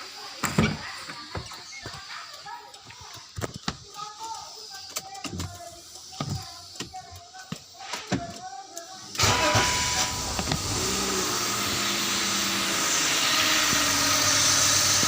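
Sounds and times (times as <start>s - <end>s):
car engine starting and idling: 9.2s - 15.0s.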